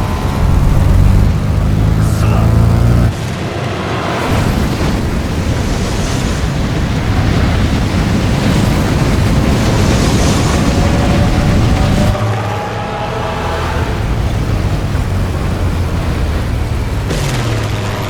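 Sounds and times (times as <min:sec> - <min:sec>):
low engine drone: 0:00.0 - 0:06.3, 0:10.6 - 0:18.0
loud dense rumble: 0:00.0 - 0:18.0.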